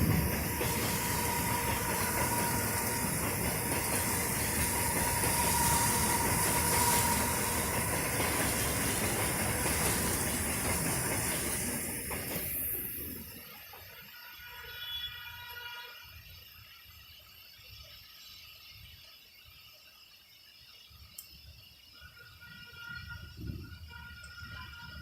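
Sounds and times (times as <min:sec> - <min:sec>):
heavy rain pouring: 0:00.0 - 0:11.8.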